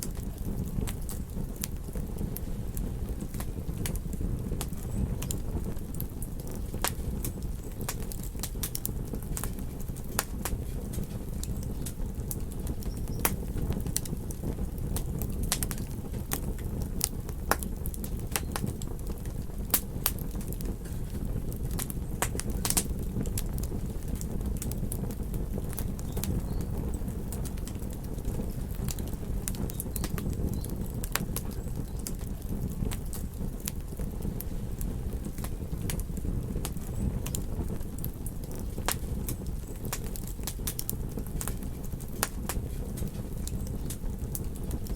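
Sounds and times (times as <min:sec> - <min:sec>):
campfire crackling: 0:00.0 - 0:44.9.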